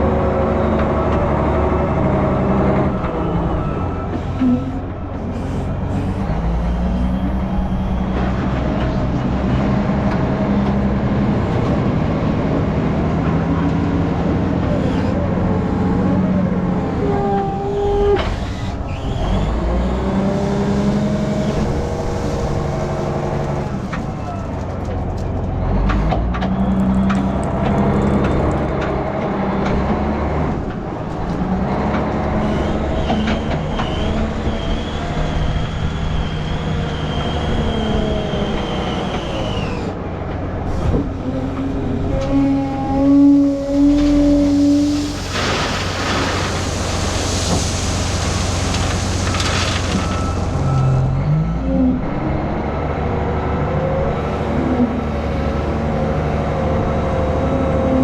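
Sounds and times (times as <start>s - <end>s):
truck diesel engine changing gears: 0.0s - 58.0s.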